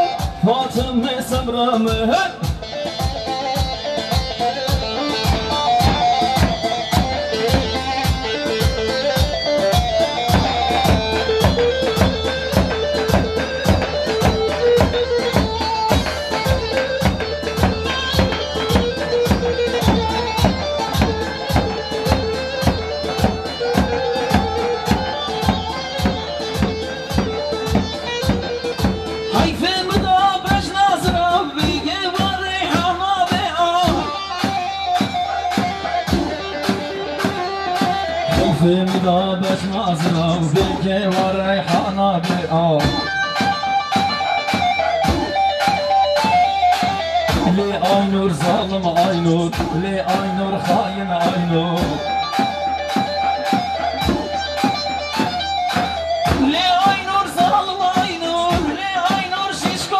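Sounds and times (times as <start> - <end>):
plucked string lead: 0.0 - 59.1
instrumental dance music: 0.0 - 59.9
keyboard: 0.0 - 59.9
steady drum beat: 0.0 - 59.9.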